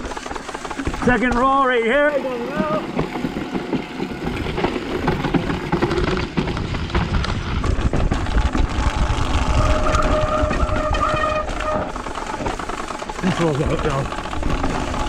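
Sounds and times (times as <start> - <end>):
spokes rattling in fast clicks: 0.0 - 15.0
steady squeal: 8.6 - 15.0.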